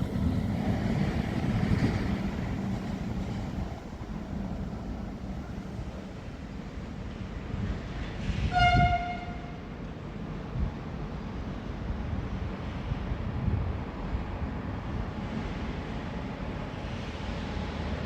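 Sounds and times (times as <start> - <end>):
passing train rumble: 0.0 - 18.0
train horn blast: 8.4 - 9.7.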